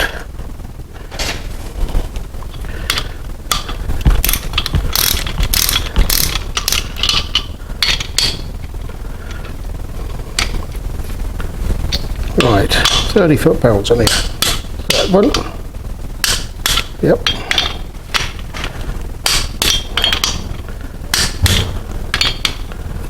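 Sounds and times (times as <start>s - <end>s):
torque wrench ratcheting clicks: 4.2s - 8.4s.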